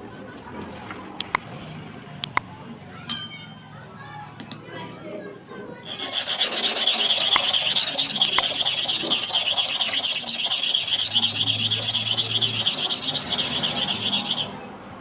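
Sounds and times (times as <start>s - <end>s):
blade scraping on abrasive surface: 5.8s - 14.6s.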